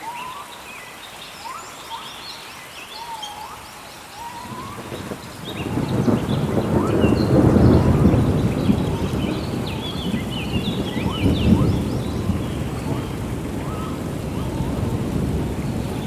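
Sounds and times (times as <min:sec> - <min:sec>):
birds chirping: 0:00.0 - 0:16.0
steady rain: 0:00.0 - 0:16.0
thunder rumble: 0:04.4 - 0:16.0.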